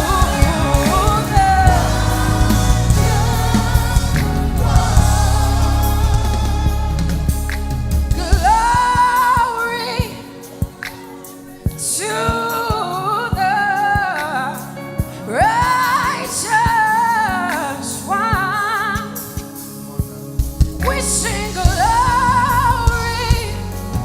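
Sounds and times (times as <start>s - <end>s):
band with drums: 0.0s - 9.6s
person singing with vibrato: 0.0s - 24.0s.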